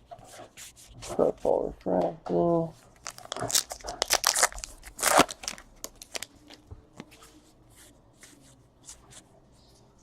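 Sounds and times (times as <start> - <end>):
wrapper crinkling and tearing: 3.0 - 6.6.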